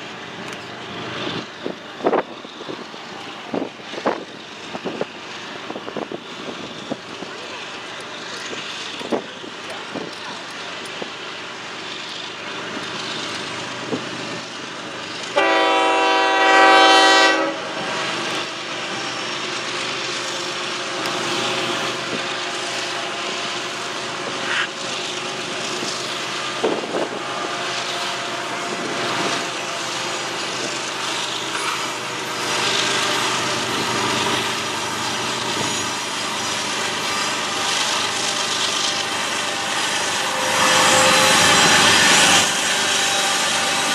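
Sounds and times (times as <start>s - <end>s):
freight train running on rails: 0.0s - 43.9s
locomotive air horn blast: 15.4s - 17.9s.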